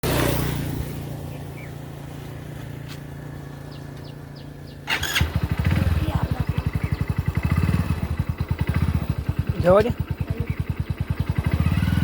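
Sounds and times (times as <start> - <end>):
motorcycle engine idling: 0.0 - 12.0
motorcycle engine revving: 0.0 - 12.0
faint bird chirps: 6.4 - 7.3.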